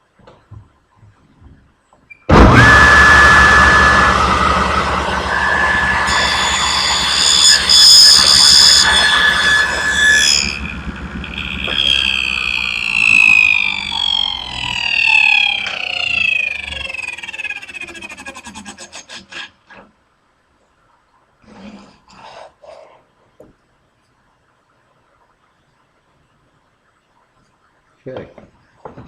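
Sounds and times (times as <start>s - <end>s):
saw blade spinning down: 2.3s - 19.5s
table saw cutting wood: 2.3s - 19.5s.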